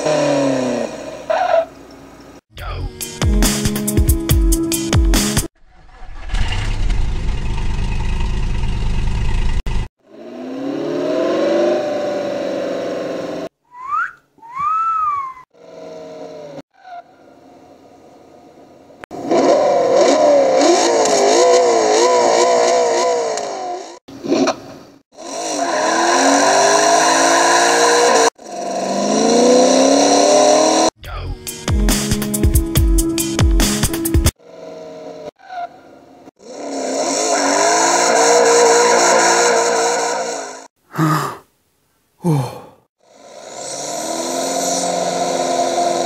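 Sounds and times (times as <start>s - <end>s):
car engine revving: 5.8s - 13.5s, 19.1s - 24.6s, 25.2s - 31.0s, 36.3s - 40.7s, 43.1s - 46.0s.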